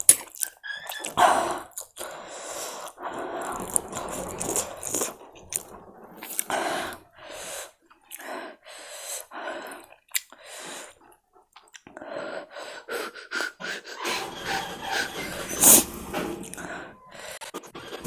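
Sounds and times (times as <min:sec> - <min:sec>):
mouth clicks: 0:00.0 - 0:08.3, 0:09.2 - 0:12.1
person chewing noodles: 0:00.0 - 0:08.3, 0:09.2 - 0:12.4, 0:16.4 - 0:18.0
noisy breaths: 0:01.2 - 0:18.0.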